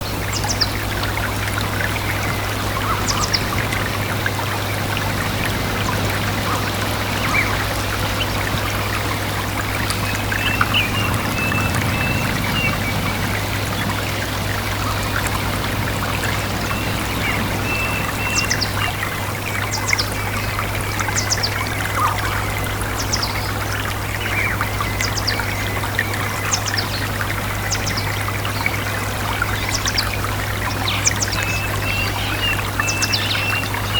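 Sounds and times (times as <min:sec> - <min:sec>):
stream water trickling: 0:00.0 - 0:33.9
steady low hum: 0:00.8 - 0:19.6
small birds chirping: 0:01.8 - 0:30.1.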